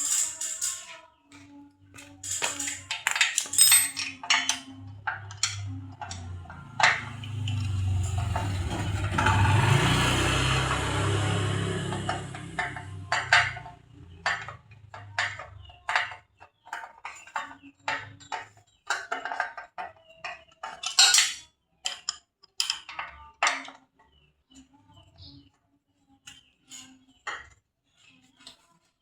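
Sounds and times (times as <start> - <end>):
metal parts and tools clinking: 0.0 - 9.8, 11.8 - 23.7.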